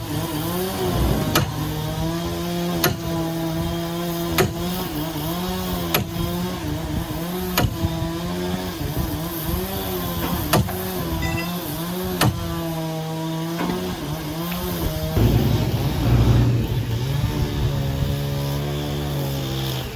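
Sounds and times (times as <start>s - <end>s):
engine-driven machine running: 0.0s - 5.7s, 13.5s - 19.8s
sharp knocks: 14.8s - 18.2s.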